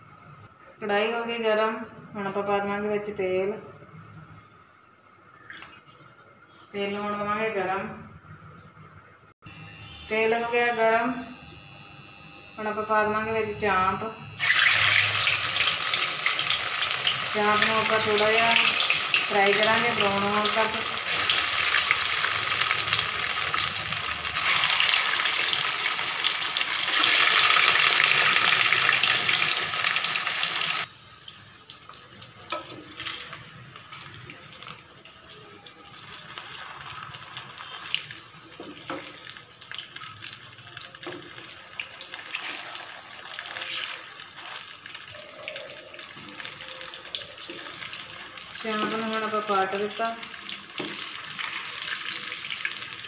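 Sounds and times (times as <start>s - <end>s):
food sizzling in hot oil: 14.4s - 34.6s, 35.9s - 53.0s.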